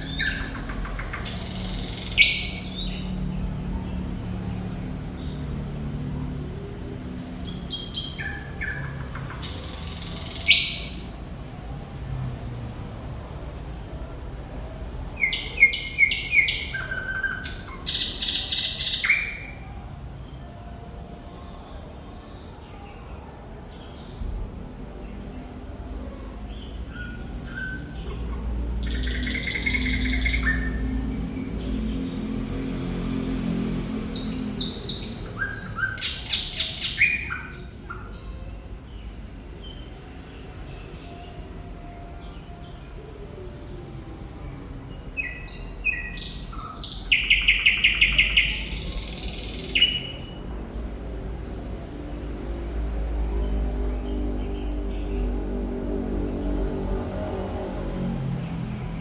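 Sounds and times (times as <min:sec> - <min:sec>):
nightingale singing: 0:00.0 - 0:03.8, 0:07.4 - 0:11.2, 0:14.2 - 0:19.7, 0:26.1 - 0:32.0, 0:33.7 - 0:39.9, 0:43.2 - 0:50.4.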